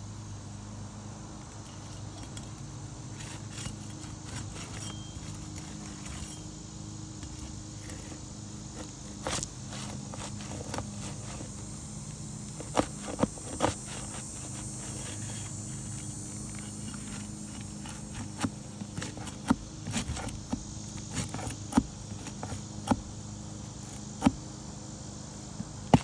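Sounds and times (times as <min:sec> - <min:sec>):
steady low hum: 0:00.0 - 0:26.0
footsteps on shingle roof: 0:07.1 - 0:24.6, 0:25.6 - 0:26.0.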